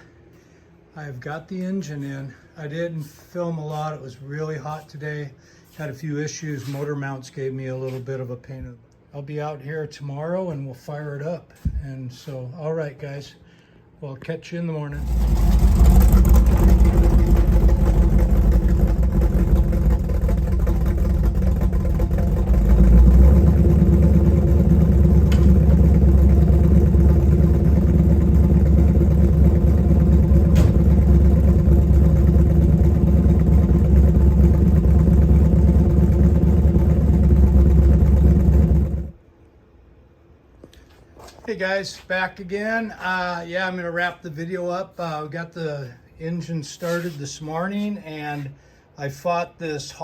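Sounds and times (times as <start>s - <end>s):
car engine running: 15.0s - 39.2s.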